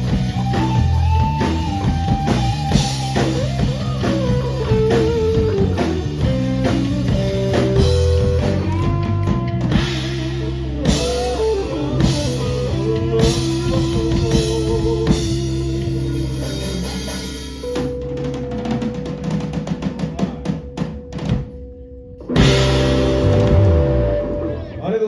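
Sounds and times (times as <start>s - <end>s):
rapid drum hits: 0.0s - 15.6s, 22.4s - 24.1s
live rock band playing: 0.0s - 25.0s.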